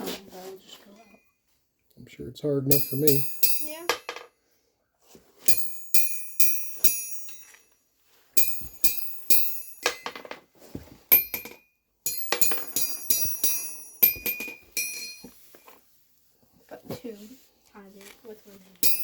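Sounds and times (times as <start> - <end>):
steel balls bouncing on anvil: 2.7 - 4.4, 5.5 - 7.7, 8.4 - 10.4, 11.1 - 15.7, 18.8 - 19.0.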